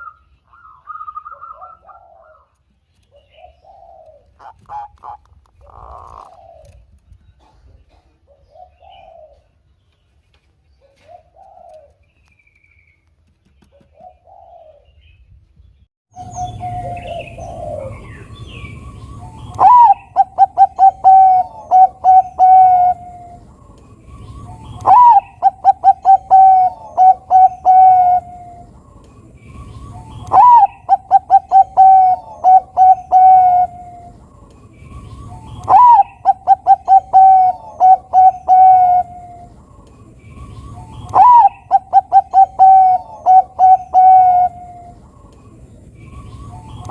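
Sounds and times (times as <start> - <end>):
dove cooing song: 0.0 - 9.8, 10.8 - 12.1, 13.7 - 15.2, 16.2 - 46.9
low background noise: 0.0 - 46.9.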